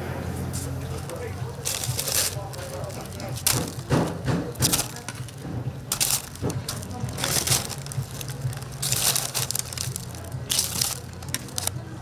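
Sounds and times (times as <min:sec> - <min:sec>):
fried chicken crust crunching: 0:00.5 - 0:12.0.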